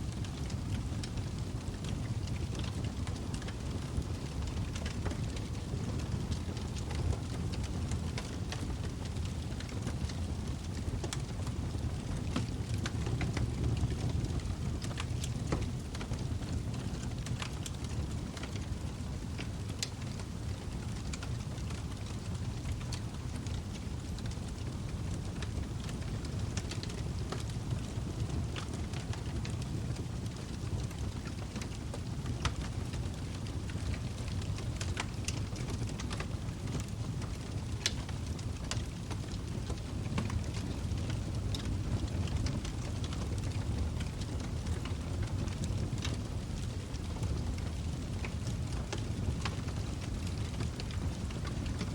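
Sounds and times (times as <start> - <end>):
log fire burning: 0.0 - 51.9
wood crackling and popping: 0.1 - 51.9.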